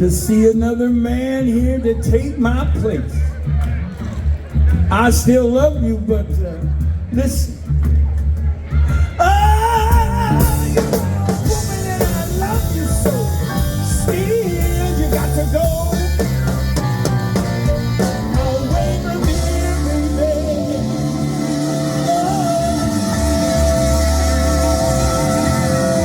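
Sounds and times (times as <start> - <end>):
bass: 0.0 - 26.0
drum kit: 6.3 - 26.0
wavering lead line: 9.9 - 26.0.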